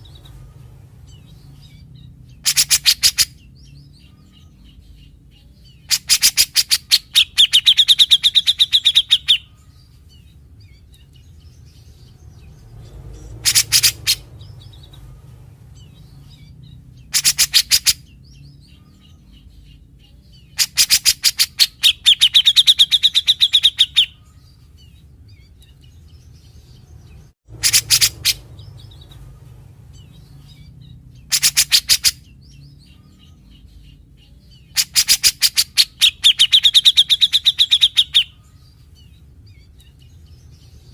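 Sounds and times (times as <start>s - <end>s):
bird rattling calls: 13.4s - 14.2s, 27.5s - 28.4s.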